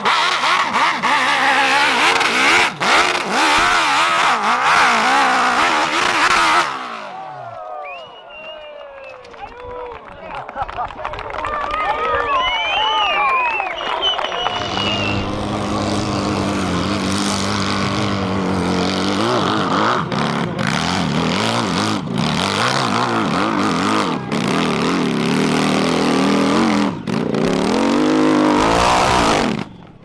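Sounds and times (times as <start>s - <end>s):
racing motorcycle engine revving: 0.0s - 7.5s, 13.8s - 29.9s.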